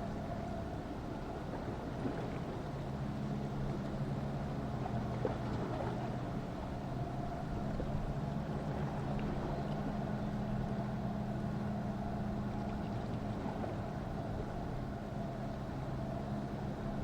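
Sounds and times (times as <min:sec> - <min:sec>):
motorboat engine humming: 0:00.0 - 0:17.0.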